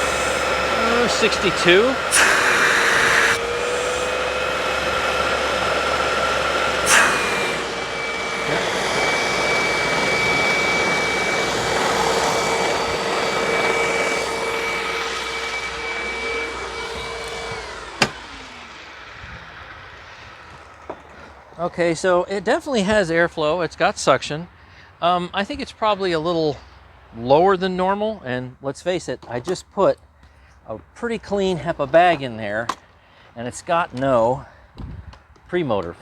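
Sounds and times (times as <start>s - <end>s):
high-pitched motor whine: 0.0s - 21.3s
vacuum cleaner motor running: 0.0s - 21.6s.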